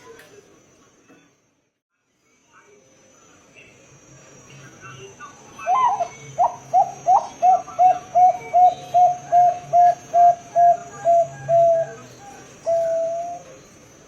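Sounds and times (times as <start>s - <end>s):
dove cooing: 5.6s - 13.7s.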